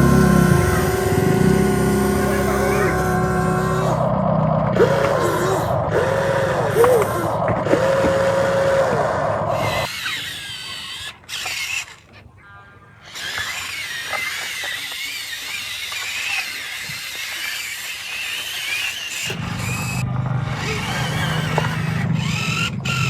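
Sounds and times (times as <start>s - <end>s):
electric motor and hydraulic pump whine: 0.0s - 23.0s.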